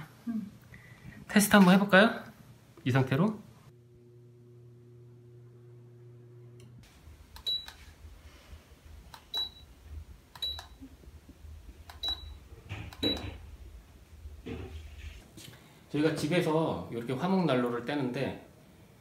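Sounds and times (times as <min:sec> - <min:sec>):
low hum: 0:03.7 - 0:15.2
fan clicks: 0:10.3 - 0:10.8, 0:11.8 - 0:13.4.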